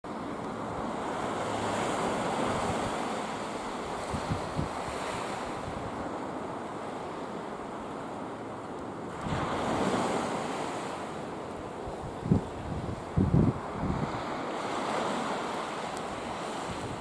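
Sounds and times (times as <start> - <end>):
sea surf washing against rock: 0.1 - 17.0
wind buffeting microphone: 1.6 - 6.6, 9.1 - 10.6, 11.5 - 17.0.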